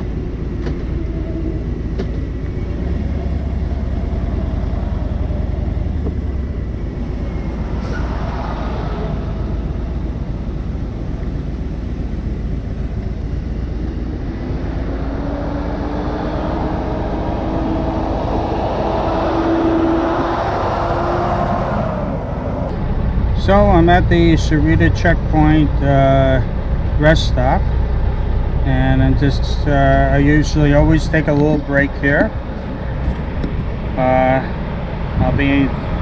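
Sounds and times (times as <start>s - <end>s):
faint rising tone: 13.5s - 25.0s
wind noise: 30.8s - 36.0s.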